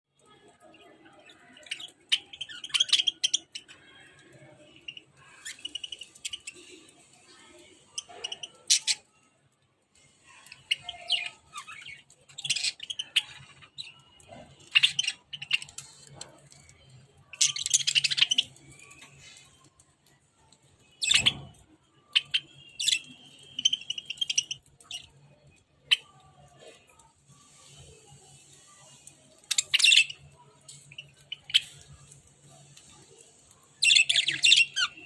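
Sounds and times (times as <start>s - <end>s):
budgerigars chirping: 33.8s - 35.0s.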